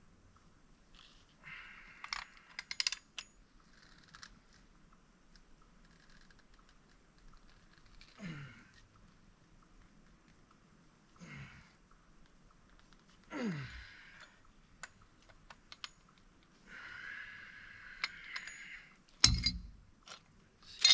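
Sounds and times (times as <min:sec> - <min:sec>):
clicks and rattles of small parts: 0:02.0 - 0:04.7, 0:05.3 - 0:08.9, 0:14.2 - 0:16.5, 0:18.0 - 0:20.9.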